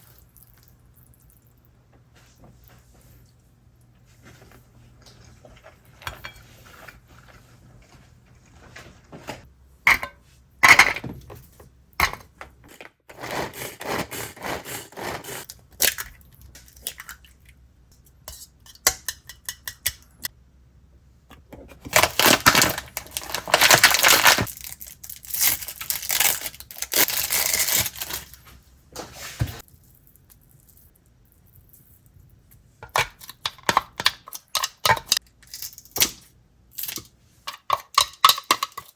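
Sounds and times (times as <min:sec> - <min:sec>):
packaging being torn: 0:21.9 - 0:28.4.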